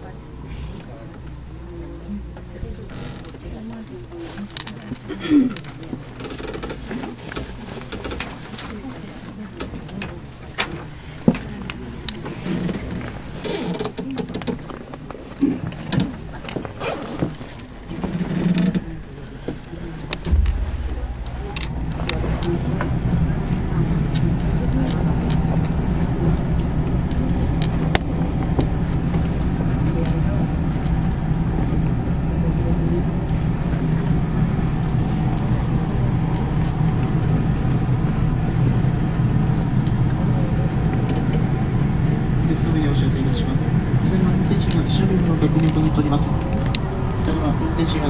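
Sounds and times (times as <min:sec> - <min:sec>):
train low rumble: 0:00.0 - 0:13.5, 0:17.8 - 0:48.0
scattered clicks and knocks: 0:20.1 - 0:25.7.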